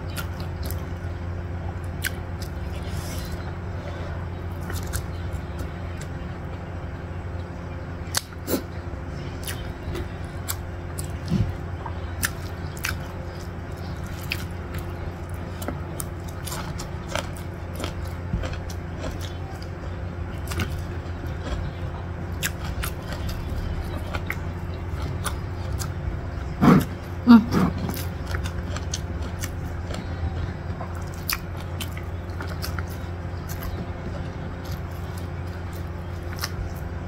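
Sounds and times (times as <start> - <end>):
steady low hum: 0.0 - 37.0
chewing and wet mouth clicks: 35.7 - 36.7.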